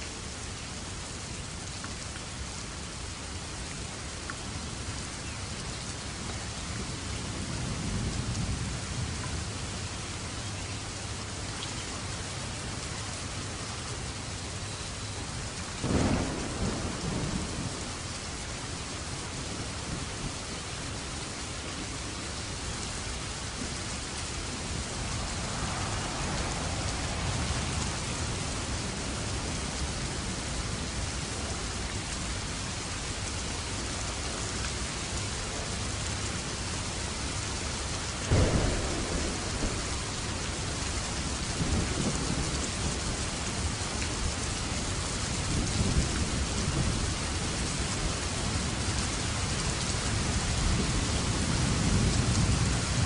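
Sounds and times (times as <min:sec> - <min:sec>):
heavy rain falling: 0:00.0 - 0:53.0
sharp thunderclap: 0:15.8 - 0:17.8, 0:38.3 - 0:40.6
rolling thunder rumbles: 0:15.8 - 0:20.5, 0:23.8 - 0:31.6, 0:38.1 - 0:53.0.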